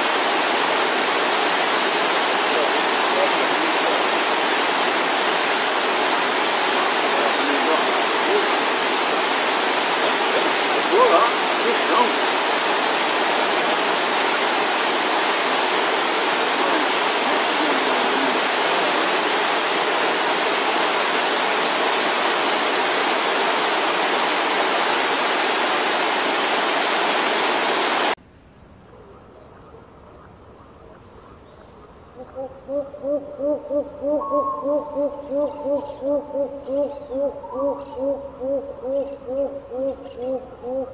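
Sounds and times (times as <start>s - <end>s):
rushing stream water: 0.0s - 28.2s
bird low hooting calls: 32.2s - 40.9s.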